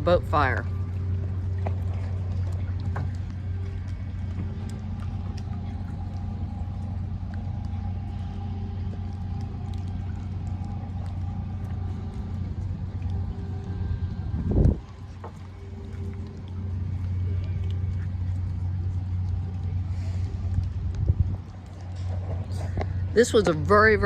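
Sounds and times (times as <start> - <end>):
engine low rumble: 0.0 - 24.0
faint steady hum: 0.0 - 24.0.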